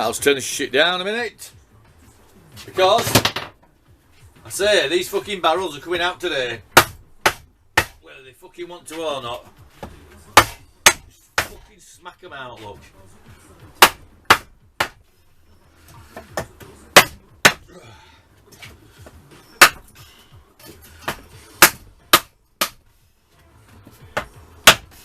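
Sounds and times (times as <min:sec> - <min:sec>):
hammer striking metal: 0:10.4 - 0:11.6, 0:19.6 - 0:19.8.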